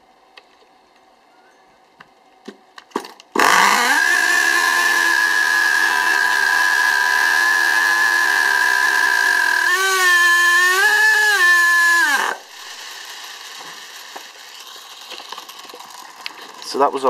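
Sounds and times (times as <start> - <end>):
two-stroke engine revving: 3.4 - 16.6.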